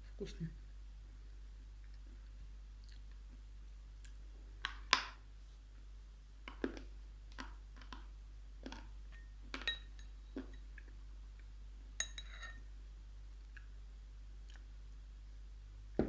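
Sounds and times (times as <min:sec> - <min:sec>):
chalk crunching when chewed: 0:02.8 - 0:03.2.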